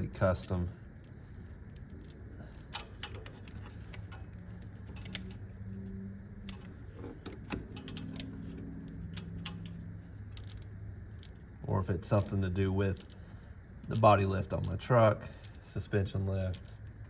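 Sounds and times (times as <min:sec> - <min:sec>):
steady low hum: 0:00.0 - 0:17.0
hand tools clicking and clinking: 0:06.4 - 0:11.4.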